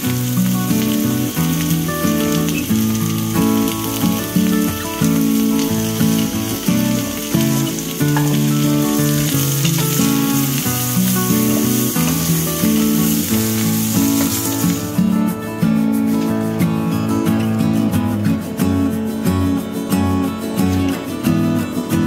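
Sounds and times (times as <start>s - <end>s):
potatoes sizzling in a skillet: 0.0s - 15.2s
background music: 0.0s - 22.0s.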